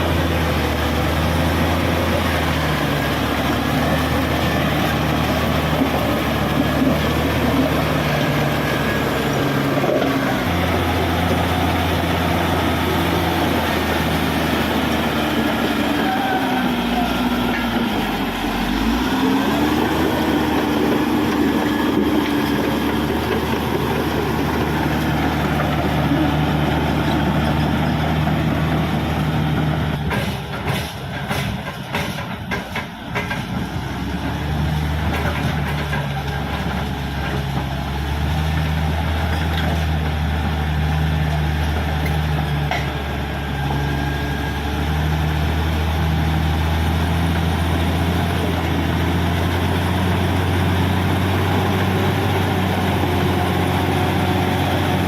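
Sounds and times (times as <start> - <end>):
bulldozer diesel engine running: 0.0 - 55.0
sharp knocks and clanks: 29.6 - 33.7, 42.0 - 43.0.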